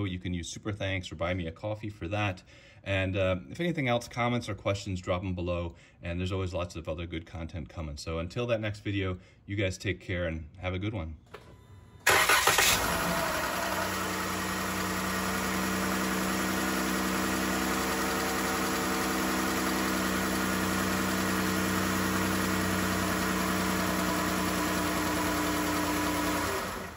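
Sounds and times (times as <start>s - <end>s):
car engine idling: 12.0s - 26.9s.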